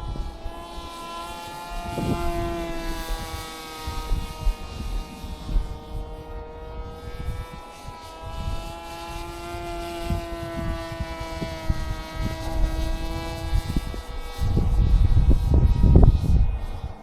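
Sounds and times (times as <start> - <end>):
model plane motor whining: 0.0 - 17.0
wind buffeting microphone: 0.0 - 17.0.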